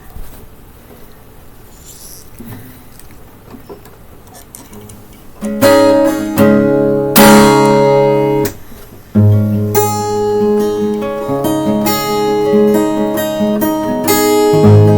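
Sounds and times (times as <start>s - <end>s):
acoustic guitar strumming chords: 4.9s - 14.9s.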